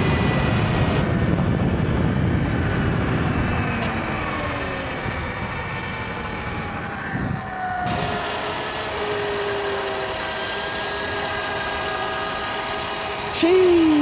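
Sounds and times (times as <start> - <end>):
electric motor whining: 0.0 - 1.1, 7.1 - 14.0
loud wind rush: 0.0 - 8.2.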